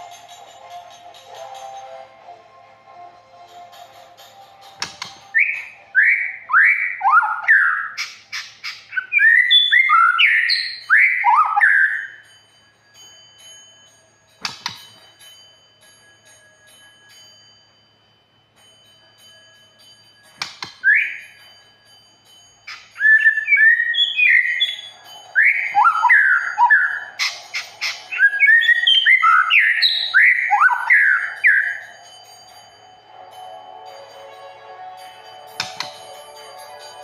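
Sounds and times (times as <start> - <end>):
songbird whistling: 4.8 - 12.2, 20.4 - 21.4, 22.7 - 32.0.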